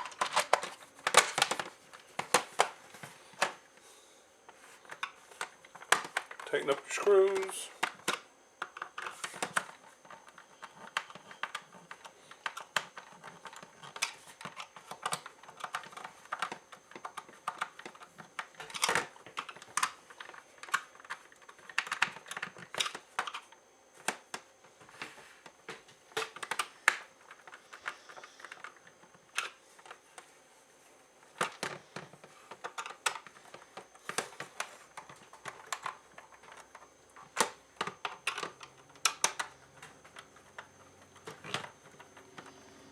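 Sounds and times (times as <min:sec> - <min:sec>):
plastic parts knocking: 0:00.0 - 0:03.6.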